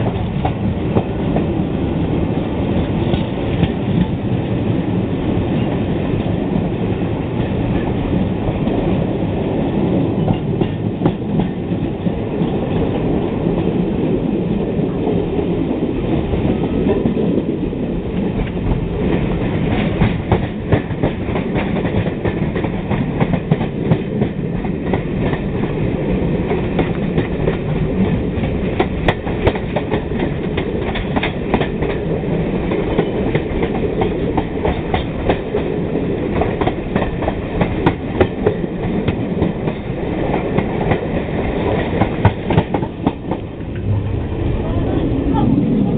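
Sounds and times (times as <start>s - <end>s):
train wheels clicking over rail joints: 2.8s - 4.6s, 10.2s - 12.6s, 18.2s - 44.1s.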